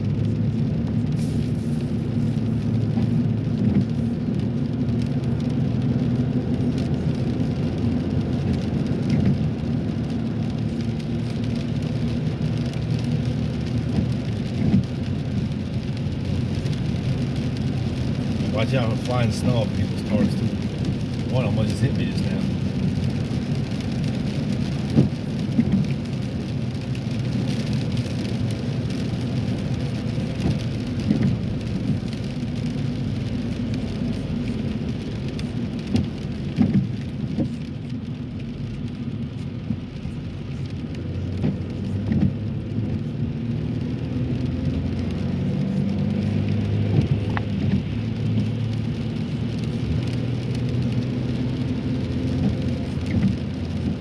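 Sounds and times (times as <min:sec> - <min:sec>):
car engine and road drone: 0:00.0 - 0:54.0
raindrops ticking on car: 0:00.0 - 0:54.0
tyre hiss on wet road: 0:01.0 - 0:04.1.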